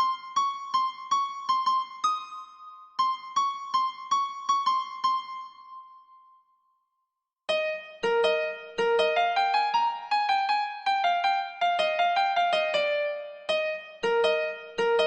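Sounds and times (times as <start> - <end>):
electric piano melody: 7.5 - 15.0.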